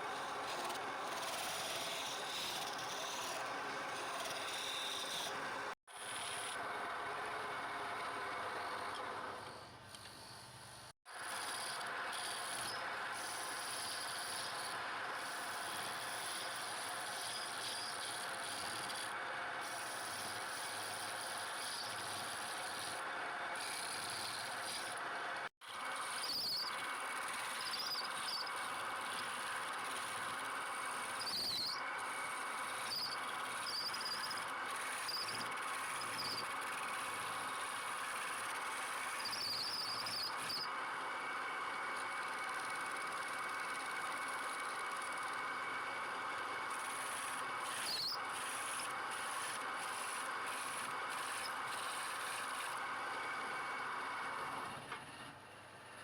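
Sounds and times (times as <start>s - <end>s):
lathe tool scraping wood: 0.1s - 6.6s, 11.3s - 23.0s, 23.6s - 25.0s, 27.2s - 40.6s, 46.7s - 52.8s.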